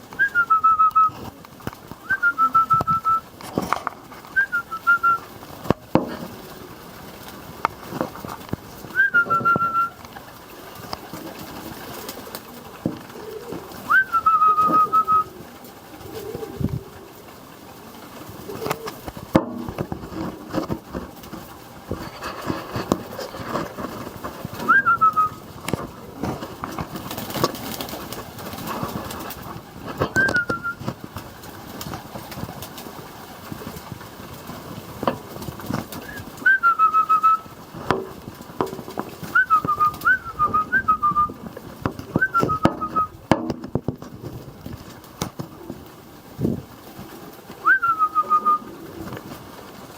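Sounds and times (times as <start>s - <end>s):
knocks and shuffling: 0.0s - 49.9s
pigeons cooing: 0.0s - 49.9s.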